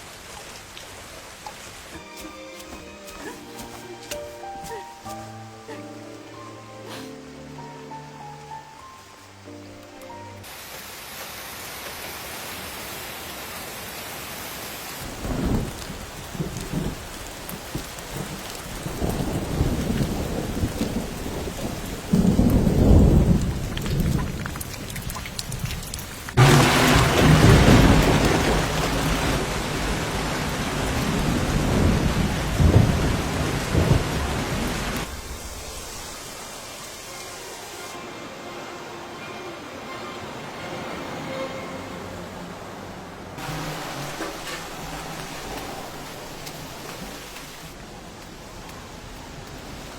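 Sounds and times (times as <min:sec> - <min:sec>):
steady rain falling: 0:00.0 - 0:49.9
thunder rumbling: 0:15.0 - 0:36.9, 0:43.4 - 0:48.0.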